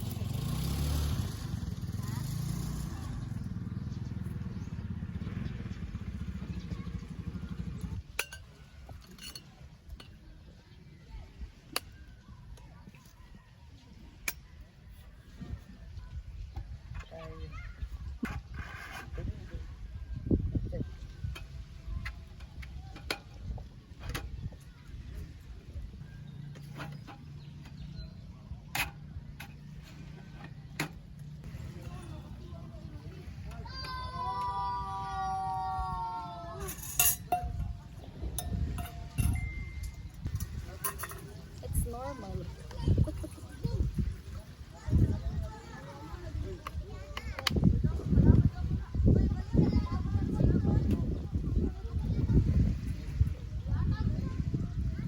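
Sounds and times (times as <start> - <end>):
motorcycle engine idling: 0.0 - 8.0
light clinks: 8.2 - 10.2, 36.6 - 41.7.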